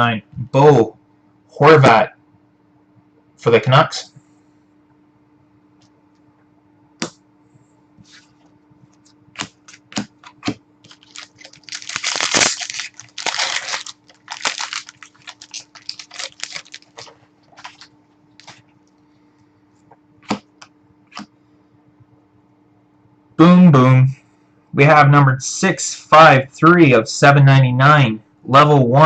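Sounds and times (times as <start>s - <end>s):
cards clicking and tapping: 9.4s - 11.3s, 20.2s - 21.3s
packaging rustling: 9.4s - 18.7s.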